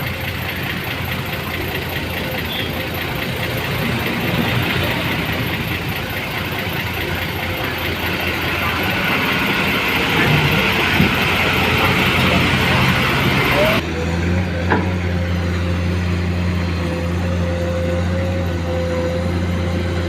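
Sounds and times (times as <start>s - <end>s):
large engine humming: 0.0s - 20.0s.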